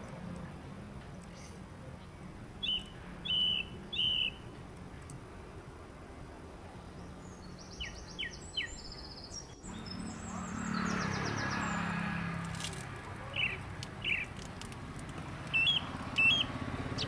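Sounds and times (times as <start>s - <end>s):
birds chirping: 0.0s - 17.0s
bird trill: 2.6s - 4.6s, 7.0s - 12.3s, 13.2s - 14.5s, 15.4s - 17.0s.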